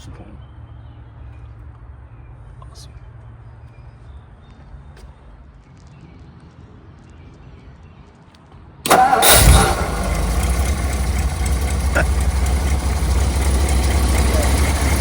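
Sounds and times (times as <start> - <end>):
car engine starting and idling: 8.8 - 15.0.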